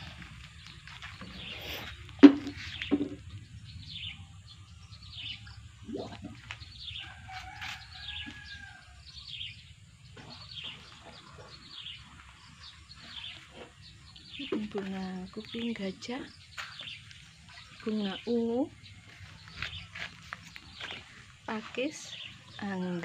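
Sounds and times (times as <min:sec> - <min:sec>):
sharp knocks: 0:02.2 - 0:03.2.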